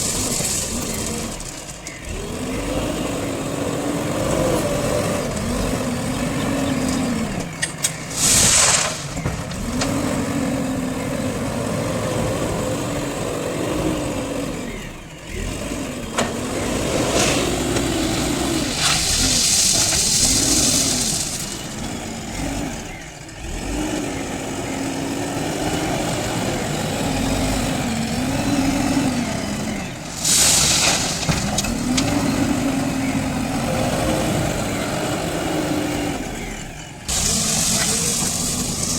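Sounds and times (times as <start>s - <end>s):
diesel engine revving: 0.0s - 38.9s
loud hiss bursts: 8.1s - 9.2s, 30.1s - 31.3s.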